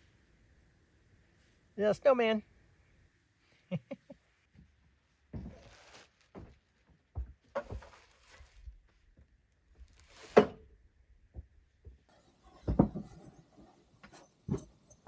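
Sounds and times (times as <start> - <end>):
knocks and thumps: 12.6 - 13.3.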